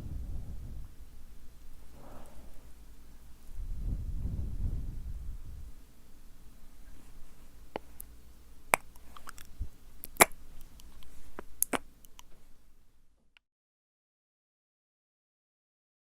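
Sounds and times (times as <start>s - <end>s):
wet mouth clicks and smacks: 8.8s - 12.3s.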